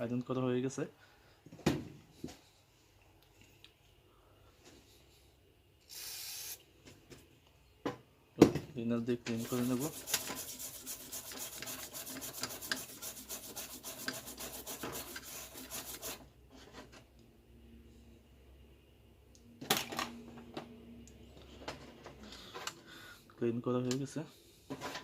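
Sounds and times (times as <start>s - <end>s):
rapid rubbing on circuit board: 9.4s - 16.2s.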